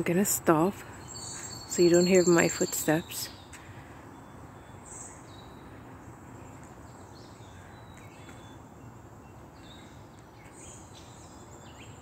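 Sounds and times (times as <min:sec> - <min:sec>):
faint birds chirping: 0:00.0 - 0:12.0
steady low background noise: 0:00.0 - 0:12.0.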